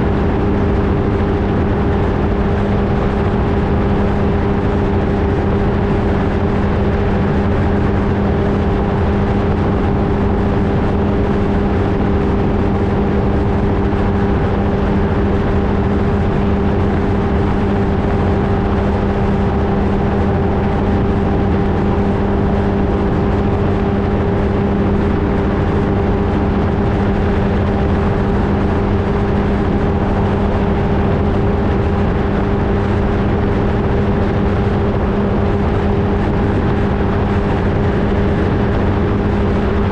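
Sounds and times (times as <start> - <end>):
ultralight engine and propeller drone: 0.0 - 39.9.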